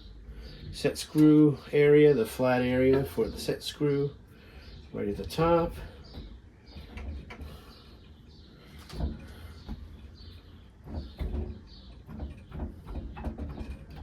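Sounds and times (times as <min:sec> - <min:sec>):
knocks and scrapes of fan hub: 0:00.4 - 0:04.0, 0:04.6 - 0:14.0.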